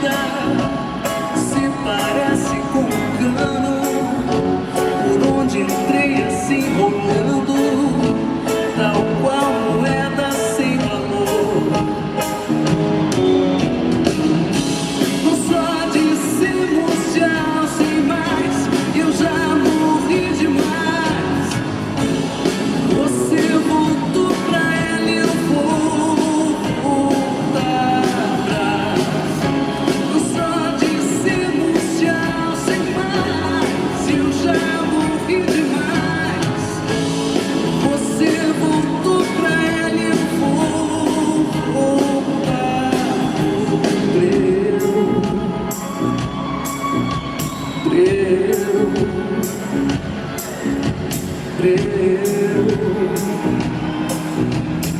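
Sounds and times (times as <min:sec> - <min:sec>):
live band playing: 0:00.0 - 0:54.9
woman singing: 0:22.9 - 0:37.0.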